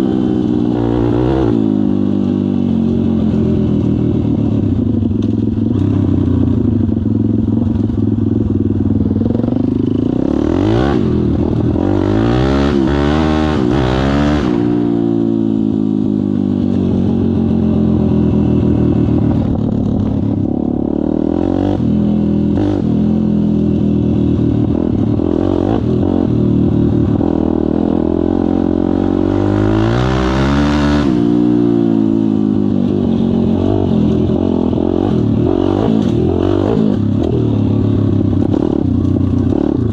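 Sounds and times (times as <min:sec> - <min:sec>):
pit bike engine revving: 0:08.7 - 0:15.4, 0:17.4 - 0:39.9.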